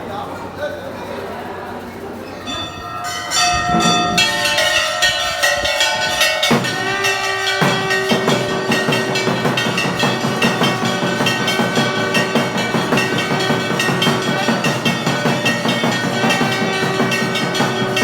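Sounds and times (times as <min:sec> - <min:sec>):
steady ringing tones: 0:00.8 - 0:18.0
bells clanging: 0:00.9 - 0:18.0
drumming: 0:02.5 - 0:18.0.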